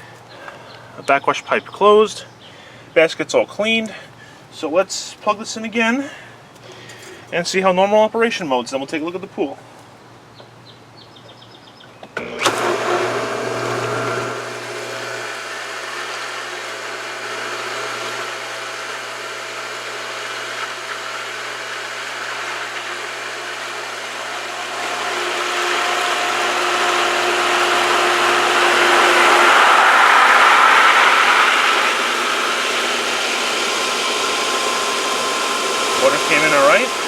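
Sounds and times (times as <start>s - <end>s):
pool pump motor running: 12.2s - 37.0s
rushing water and air: 27.8s - 34.4s.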